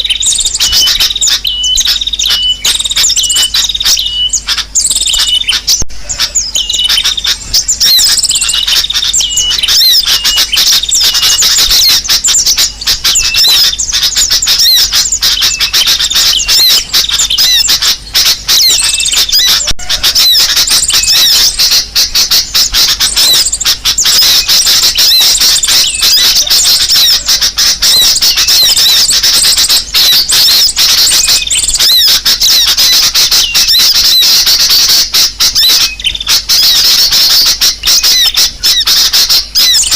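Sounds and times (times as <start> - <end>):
bulbul calls: 0.0 - 39.9
sunbird calls: 0.0 - 39.9.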